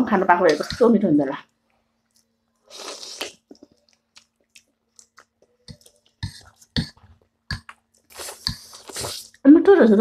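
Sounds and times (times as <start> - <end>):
wet chewing mouth clicks: 2.1 - 9.4.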